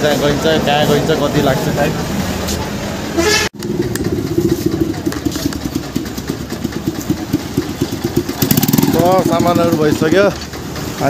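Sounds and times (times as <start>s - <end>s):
motorcycle engine idling: 3.6s - 11.0s.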